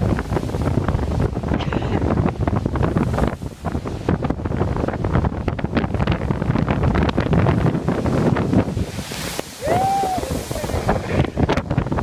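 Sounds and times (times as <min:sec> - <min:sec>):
storm waves on a lake: 0:00.0 - 0:12.0
wind buffeting microphone: 0:00.0 - 0:12.0.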